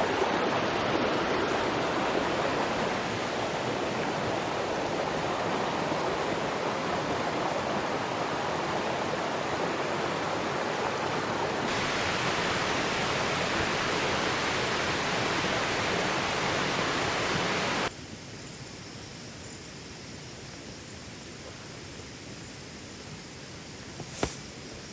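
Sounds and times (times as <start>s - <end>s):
rushing river water: 0.0s - 17.9s.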